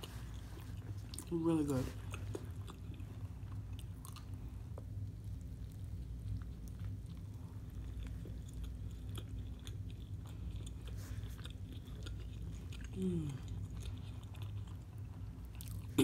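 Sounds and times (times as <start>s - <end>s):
person chewing with crunches: 0.0s - 16.0s
person humming mm: 13.0s - 13.5s.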